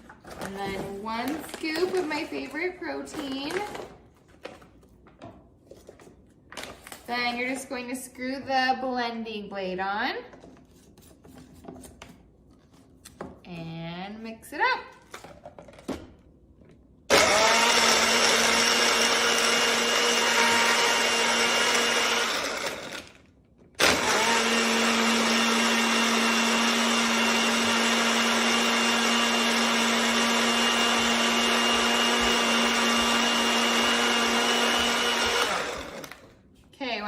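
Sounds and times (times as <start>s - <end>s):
blender blending ice: 17.1s - 23.2s, 23.8s - 36.4s.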